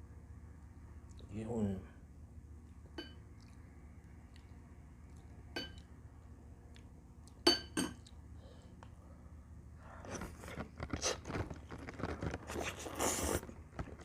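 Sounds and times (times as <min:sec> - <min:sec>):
chewing and mouth noises: 0:02.6 - 0:07.4, 0:08.0 - 0:09.0, 0:10.0 - 0:14.0.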